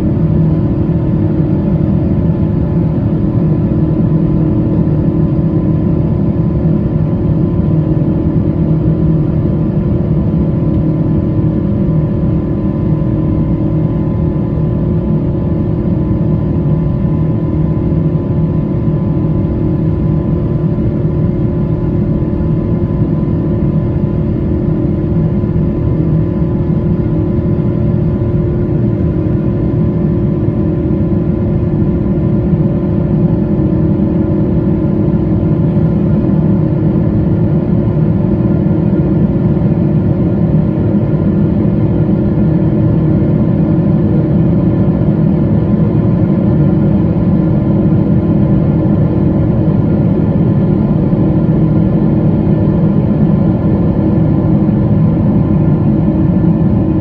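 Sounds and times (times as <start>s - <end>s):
deep jet engine drone: 0.0s - 57.0s.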